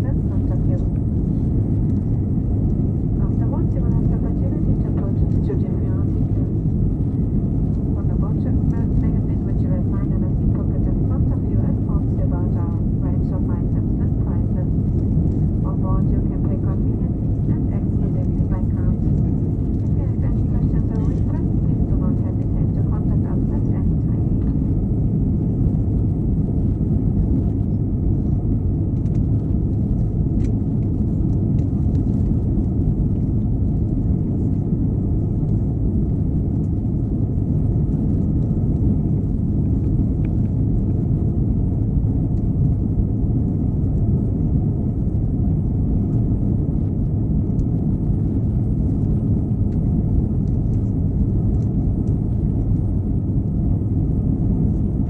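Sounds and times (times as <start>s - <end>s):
airplane cabin drone: 0.0s - 55.0s.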